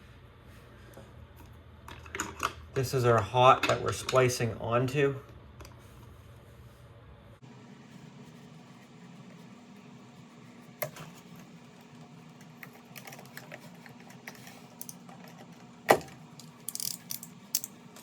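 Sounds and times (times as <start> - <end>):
steady low hum: 4.4 - 18.0
electrical wire handling: 10.7 - 18.0
hand tools clicking and knocking: 12.5 - 17.7.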